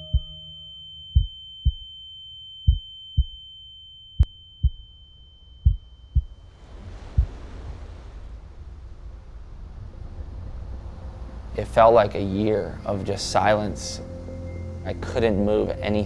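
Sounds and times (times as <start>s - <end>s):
heartbeat thumps: 0.0s - 0.4s, 1.2s - 1.8s, 2.7s - 3.4s, 4.2s - 4.8s, 5.6s - 6.4s, 7.1s - 7.4s
high-pitched ringing tone: 0.0s - 6.5s
rushing noise: 6.5s - 14.2s.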